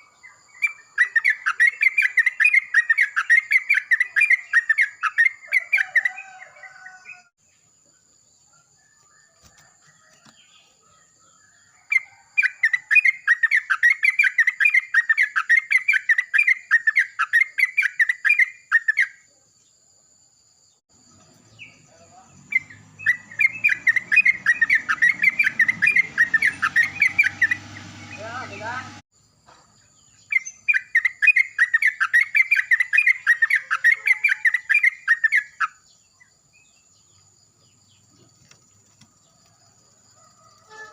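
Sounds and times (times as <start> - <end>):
bulbuls singing chattering notes: 0.0 - 7.2, 21.0 - 29.0, 29.8 - 38.5.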